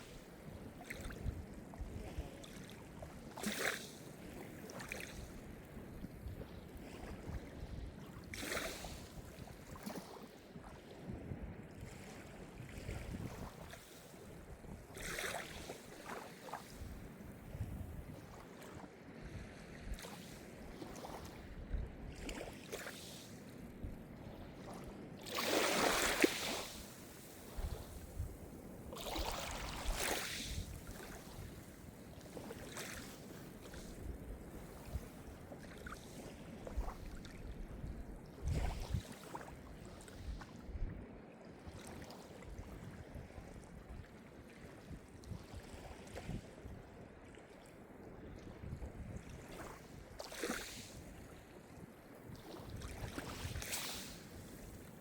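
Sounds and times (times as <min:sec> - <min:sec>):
small waves washing in: 0:06.8 - 0:10.4, 0:22.2 - 0:37.4, 0:49.0 - 0:55.0.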